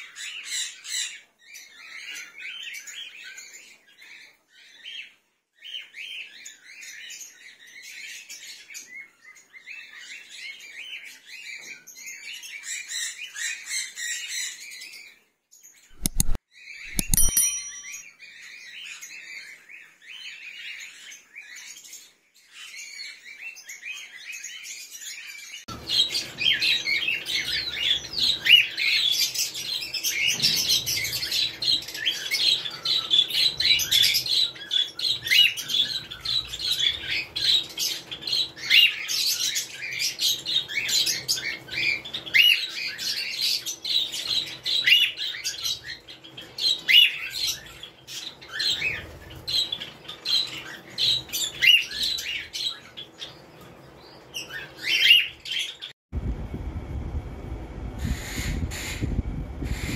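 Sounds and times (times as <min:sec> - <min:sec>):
small birds chirping: 0:00.0 - 0:56.0
low rumble: 0:56.2 - 0:59.9.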